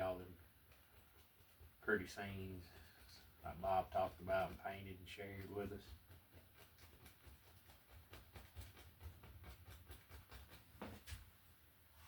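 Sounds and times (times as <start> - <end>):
paintbrush tapping on canvas: 5.4 - 11.2.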